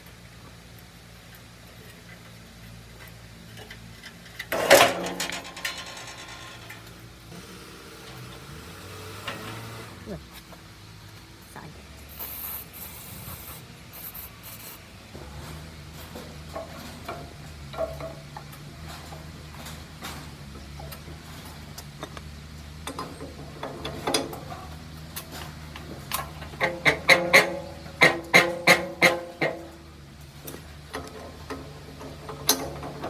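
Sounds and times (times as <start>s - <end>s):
steady low hum: 0.0s - 33.0s
scraping and rubbing metal parts: 1.8s - 33.0s.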